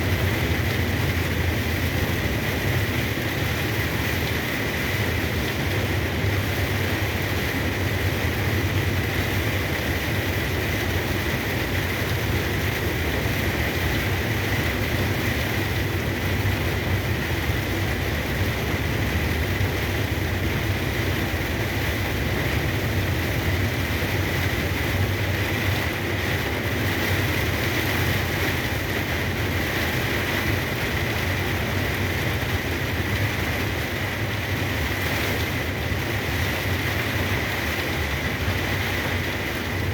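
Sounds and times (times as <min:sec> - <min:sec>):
low truck engine drone: 0:00.0 - 0:39.9
rain and tyre spray hiss: 0:00.0 - 0:39.9.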